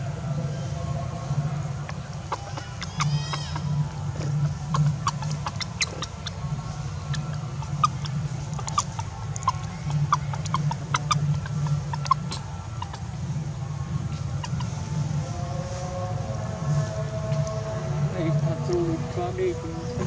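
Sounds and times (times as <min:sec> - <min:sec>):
low steady hum: 0:00.0 - 0:20.0
animal squeaks and chirps: 0:01.8 - 0:16.1.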